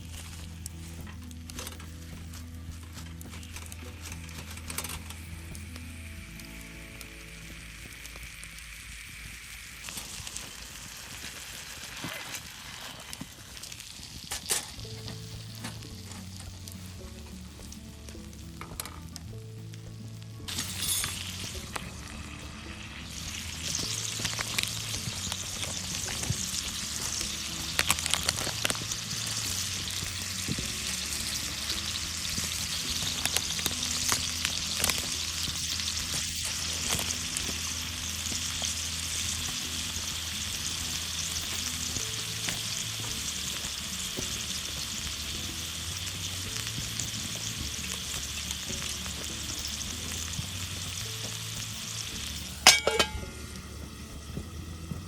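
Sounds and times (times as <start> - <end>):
food sizzling in a pan: 0.0 - 55.0
clinks: 20.5 - 21.5, 52.6 - 53.4.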